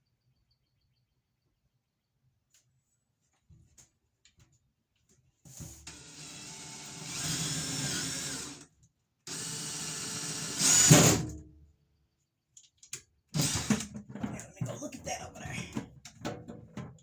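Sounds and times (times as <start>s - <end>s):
power drill boring through wall: 5.9s - 8.7s, 9.3s - 11.3s, 13.4s - 13.9s.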